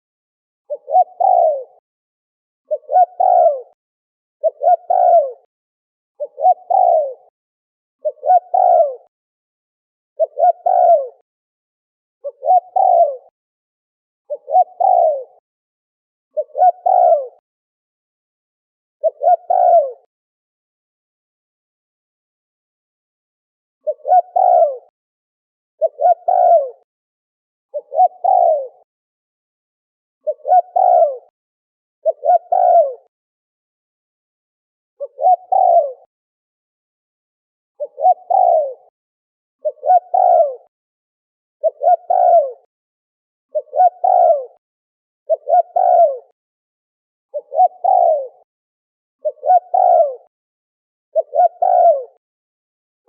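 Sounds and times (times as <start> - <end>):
dove cooing: 0.7 - 1.8, 2.7 - 3.8, 4.4 - 5.5, 6.2 - 7.3, 8.0 - 9.1, 10.2 - 11.2, 12.2 - 13.3, 14.3 - 15.4, 16.4 - 17.4, 19.0 - 20.1, 23.8 - 24.9, 25.8 - 26.9, 27.7 - 28.9, 30.2 - 31.3, 32.0 - 33.1, 35.0 - 36.1, 37.8 - 38.9, 39.6 - 40.7, 41.6 - 42.7, 43.5 - 44.6, 45.3 - 46.4, 47.3 - 48.5, 49.2 - 50.3, 51.2 - 52.2.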